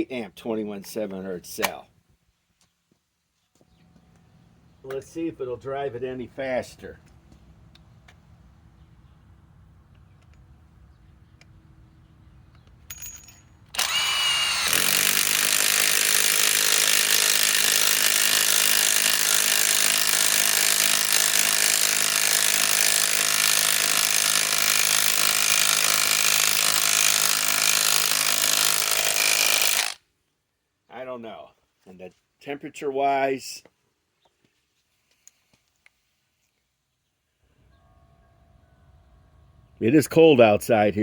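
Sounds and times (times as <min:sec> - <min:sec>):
impact wrench hammering: 0:12.9 - 0:30.0.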